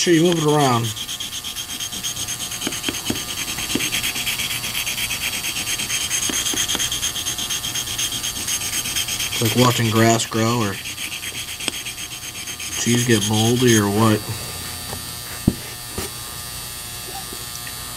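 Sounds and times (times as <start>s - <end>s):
metal scraping on sharpening stone: 0.0s - 14.0s.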